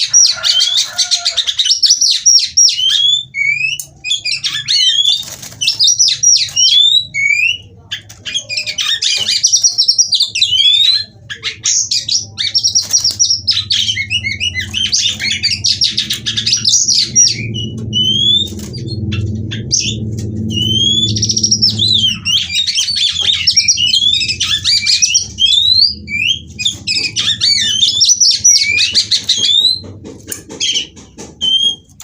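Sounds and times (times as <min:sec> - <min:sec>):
bird singing whistled glides: 0:11.8 - 0:29.8
low hum: 0:13.1 - 0:31.9.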